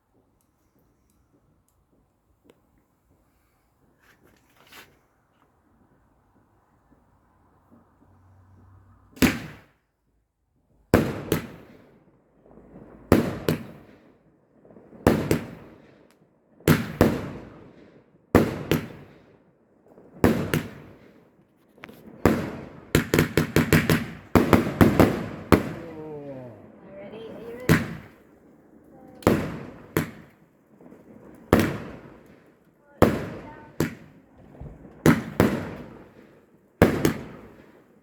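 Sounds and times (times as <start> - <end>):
fireworks banging: 12.7 - 14.0, 14.8 - 15.8, 16.7 - 17.7, 18.4 - 19.2, 19.9 - 38.0.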